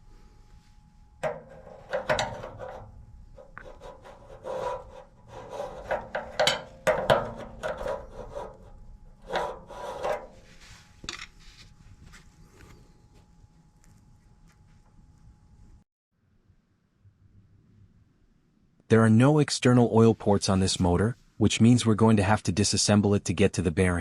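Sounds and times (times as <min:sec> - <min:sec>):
blower motor scraping and clunking: 0:01.2 - 0:10.7.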